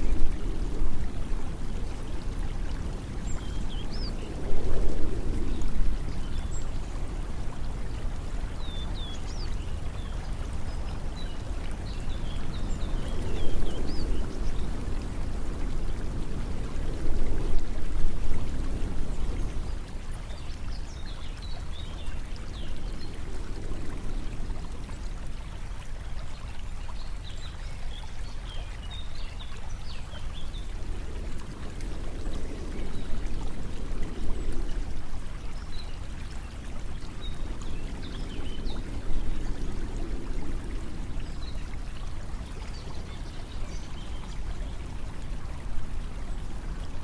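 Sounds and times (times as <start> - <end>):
running water rushing: 0.0 - 47.0.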